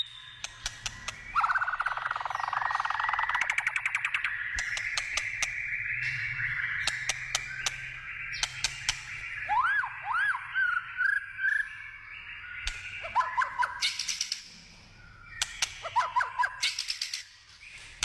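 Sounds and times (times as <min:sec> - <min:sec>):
bird singing whistled notes: 0:00.0 - 0:18.0
sharp clicks: 0:00.4 - 0:01.2, 0:04.5 - 0:05.6, 0:06.8 - 0:09.2, 0:15.4 - 0:15.8.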